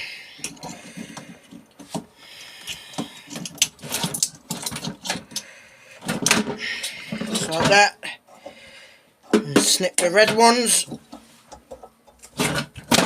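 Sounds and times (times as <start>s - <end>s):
parts clattering: 0.3s - 8.6s, 9.2s - 13.0s.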